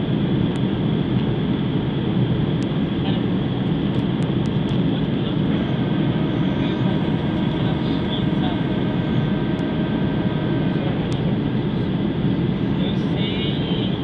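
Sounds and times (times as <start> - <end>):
faint steady whine: 0.0 - 14.0
jet engines and airflow rumble: 0.0 - 14.0.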